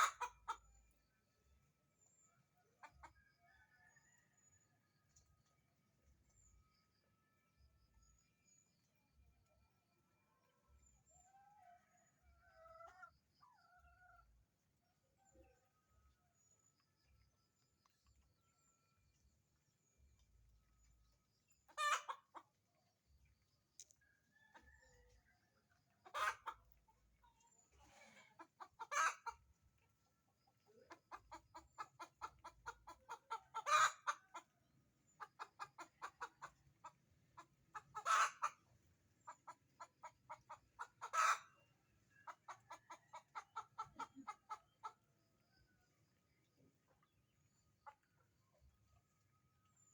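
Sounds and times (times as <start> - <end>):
hen clucking: 0.0 - 0.8, 21.7 - 22.5, 26.0 - 29.5, 30.7 - 34.5, 35.1 - 45.1, 46.9 - 48.2.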